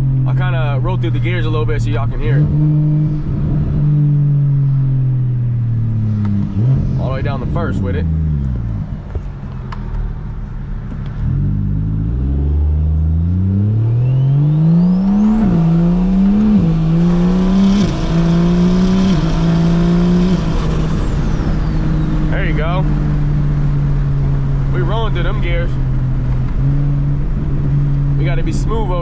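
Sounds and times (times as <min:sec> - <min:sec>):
car engine accelerating: 0:00.0 - 0:29.0
high turbo whistle: 0:13.7 - 0:16.6.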